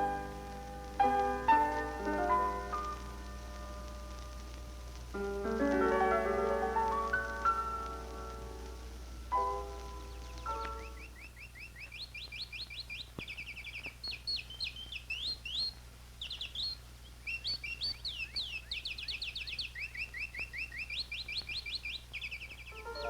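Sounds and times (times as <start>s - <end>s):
steady low hum: 0.0s - 11.6s
birds chirping and trilling: 5.8s - 23.0s.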